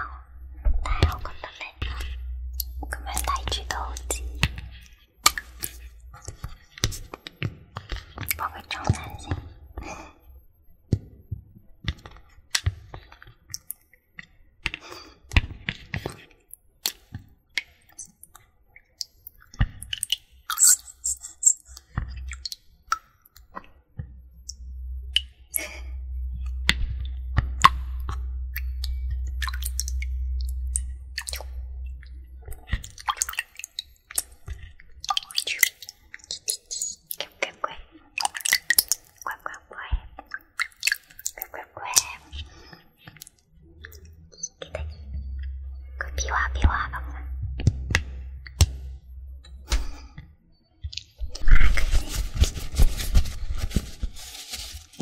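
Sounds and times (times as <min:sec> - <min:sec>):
steady low rumble: 0:00.0 - 0:06.7, 0:24.0 - 0:35.1, 0:43.6 - 0:50.2
water clicks and crackles: 0:00.0 - 0:10.1, 0:10.9 - 0:55.0.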